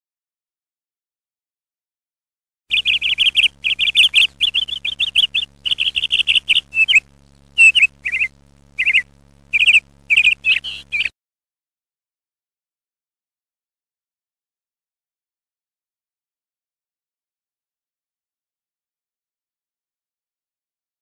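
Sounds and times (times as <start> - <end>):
faint low hum: 2.7 - 11.1
small birds chirping: 2.7 - 11.1.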